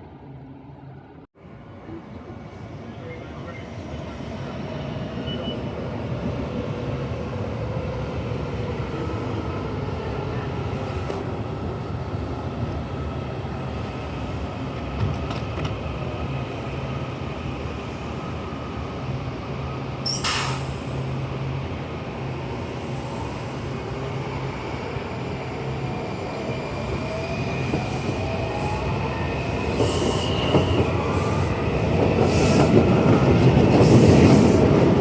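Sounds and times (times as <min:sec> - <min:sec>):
sharp hiss: 0:20.1 - 0:20.9.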